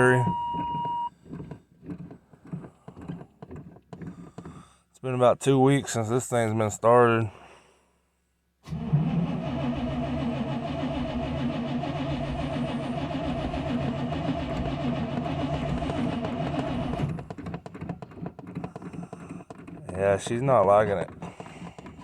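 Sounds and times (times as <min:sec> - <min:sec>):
starter cranking engine: 0:08.6 - 0:22.0.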